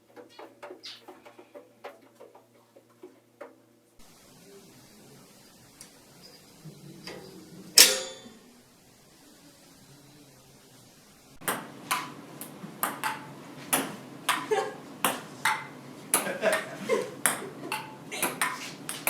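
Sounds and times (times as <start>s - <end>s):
sharp ringing pings: 4.4s - 8.6s.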